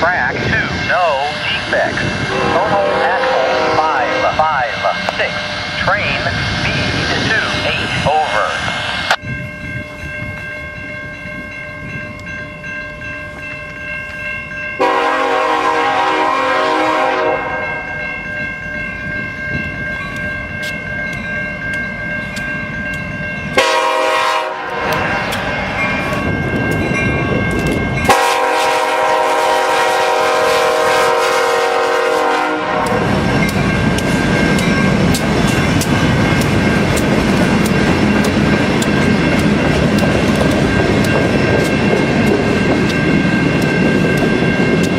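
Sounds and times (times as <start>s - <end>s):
train cars rumbling: 0.0s - 44.9s
locomotive horn blasts: 2.3s - 4.7s, 14.8s - 17.9s, 23.6s - 25.6s, 28.0s - 33.3s.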